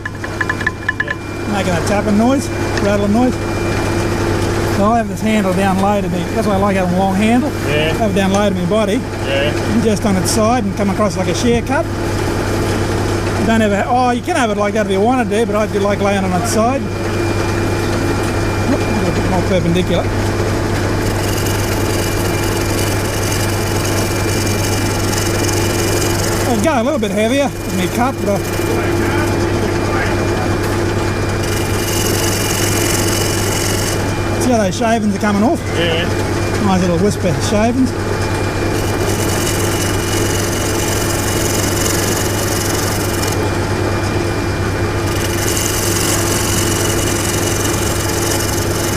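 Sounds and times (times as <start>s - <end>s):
wood lathe motor humming: 0.0s - 48.9s
gouge cutting spinning wood: 18.6s - 35.5s, 36.1s - 43.9s, 44.6s - 48.9s.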